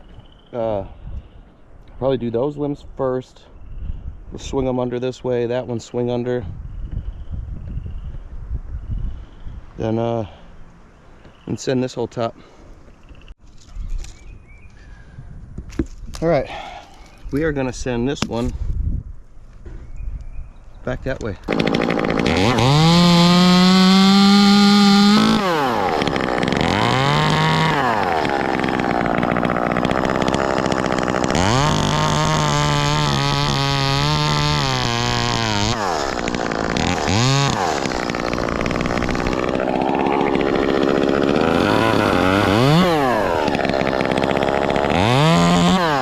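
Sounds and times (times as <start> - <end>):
chainsaw revving: 21.4 - 46.0.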